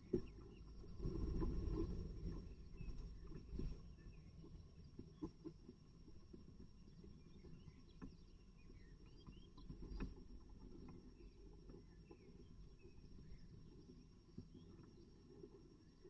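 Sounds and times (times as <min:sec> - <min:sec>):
faint bird chirps: 0:06.8 - 0:16.0.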